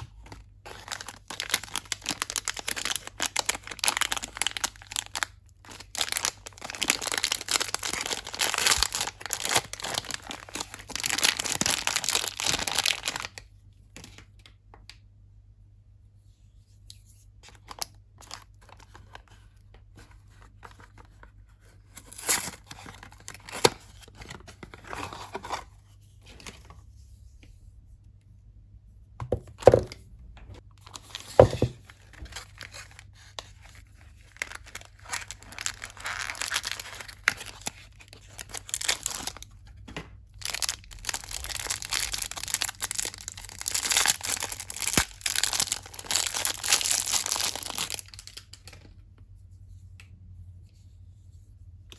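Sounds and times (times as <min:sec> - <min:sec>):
soap wrappers crinkling and tearing: 0:00.1 - 0:14.5, 0:17.5 - 0:25.5, 0:30.8 - 0:48.9
solid thuds: 0:31.4 - 0:31.8.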